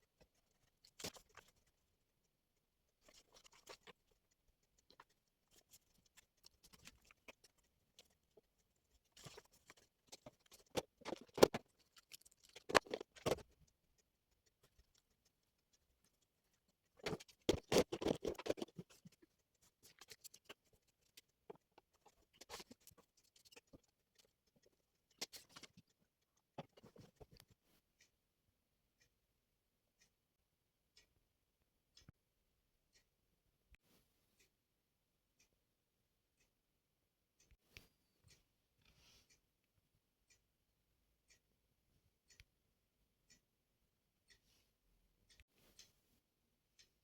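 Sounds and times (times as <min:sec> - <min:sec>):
objects clicking and rustling: 0:17.0 - 0:19.2.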